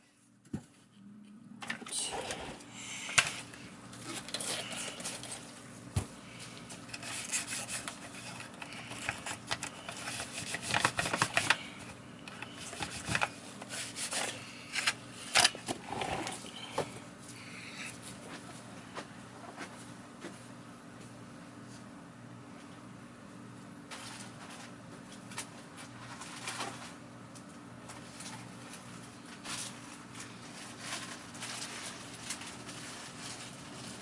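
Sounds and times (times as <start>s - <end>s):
faint steady hum: 0.0s - 34.0s
hands rubbing plastic parts: 6.4s - 17.0s.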